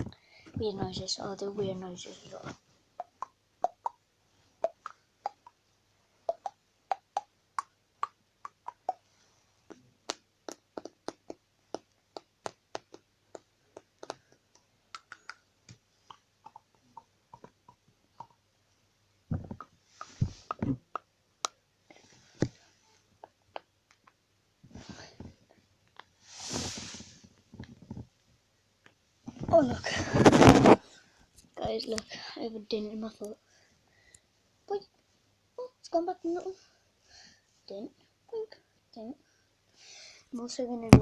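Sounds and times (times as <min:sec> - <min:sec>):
tongue clicks and lip pops: 0:03.0 - 0:04.0, 0:04.6 - 0:05.6, 0:06.3 - 0:09.0, 0:09.7 - 0:18.4, 0:19.3 - 0:21.6, 0:23.2 - 0:24.2
thumping mouth pops: 0:06.3 - 0:09.0, 0:09.7 - 0:18.4, 0:19.3 - 0:21.6.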